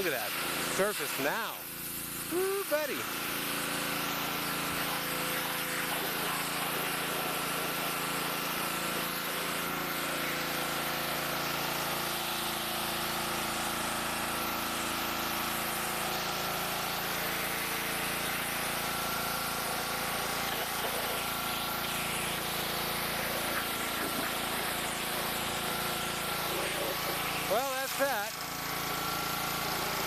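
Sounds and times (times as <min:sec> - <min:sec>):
power washer motor hum: 0:00.0 - 0:30.0
water spray hissing: 0:02.3 - 0:03.0, 0:19.6 - 0:28.4.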